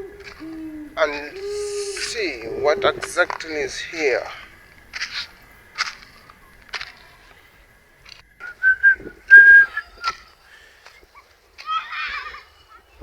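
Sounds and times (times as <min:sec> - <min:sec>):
whistled notes: 0:08.4 - 0:10.2.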